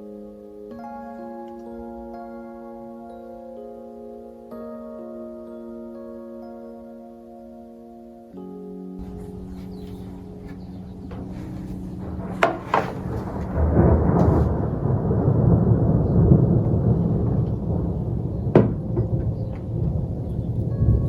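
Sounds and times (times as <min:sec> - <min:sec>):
sharp knocks: 0:09.0 - 0:13.6
low rumble: 0:09.0 - 0:21.0.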